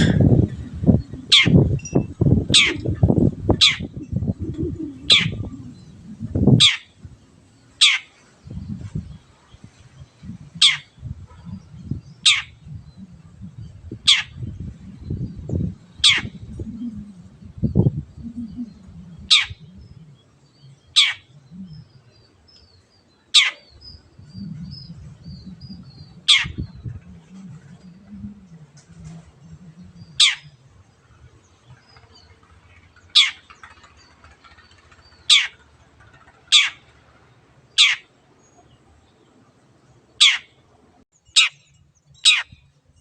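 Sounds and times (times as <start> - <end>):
bird harsh downward calls: 7.8 - 8.1, 23.3 - 23.8, 33.1 - 33.4, 35.2 - 35.6, 36.5 - 36.9, 37.8 - 38.1, 40.2 - 40.6
small bird twittering: 33.1 - 35.6.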